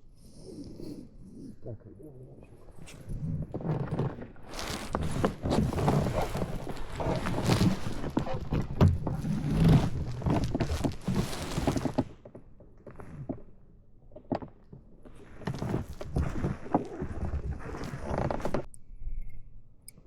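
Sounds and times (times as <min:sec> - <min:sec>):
irregular knocks and thumps: 0:03.9 - 0:12.4.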